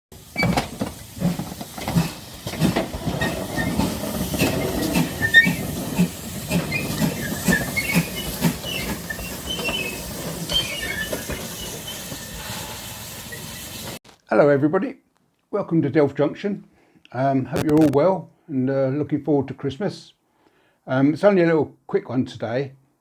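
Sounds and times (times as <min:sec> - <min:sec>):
train wheels clacking: 0:00.2 - 0:14.0
high squeaks: 0:03.1 - 0:14.0.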